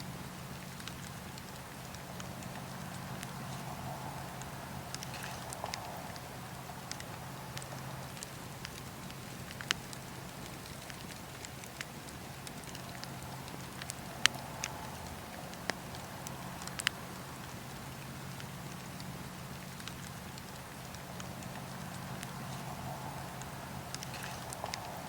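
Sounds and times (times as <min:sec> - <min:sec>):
campfire burning: 0:00.0 - 0:25.0
wood crackling and popping: 0:00.0 - 0:25.0.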